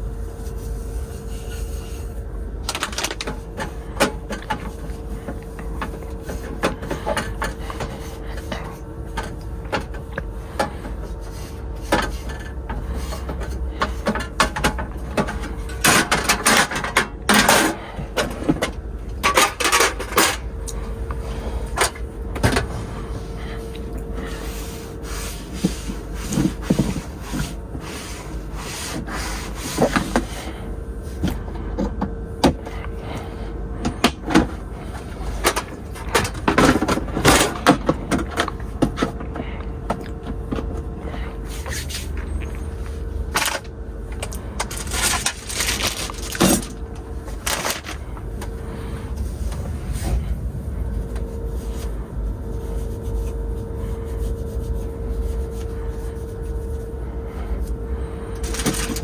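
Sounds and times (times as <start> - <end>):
constant hum: 0.0 - 59.0
steady low rumble: 0.0 - 59.0
objects knocking and scraping: 1.0 - 30.6, 33.8 - 50.4, 58.4 - 59.0.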